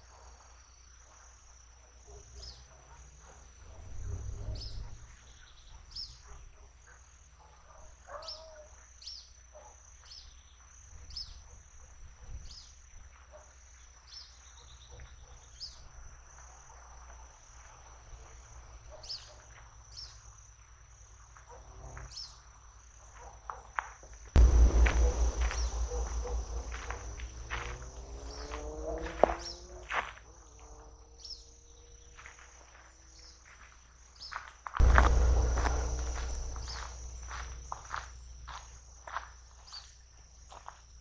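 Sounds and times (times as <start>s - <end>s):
low background rumble: 24.4s - 28.6s, 34.8s - 39.0s
high-pitched insect trill: 24.4s - 33.6s, 34.2s - 41.0s.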